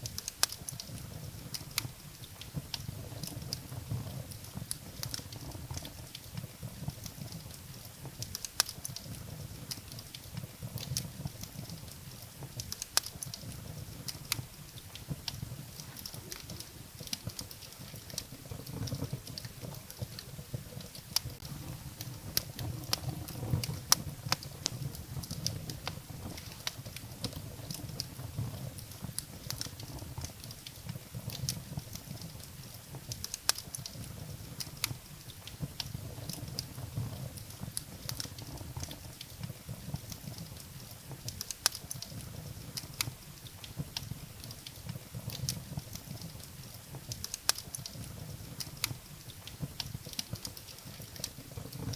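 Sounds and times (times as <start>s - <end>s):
low rumble of flames: 0.0s - 51.9s
wood fire crackling: 0.0s - 51.9s.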